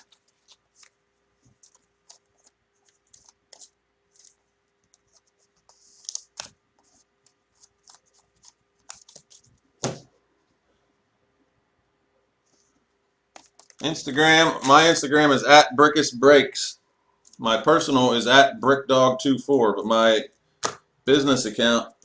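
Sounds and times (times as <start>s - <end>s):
card rustle: 0.0s - 10.0s
cards clicking and scratching: 0.0s - 10.0s, 13.4s - 13.9s.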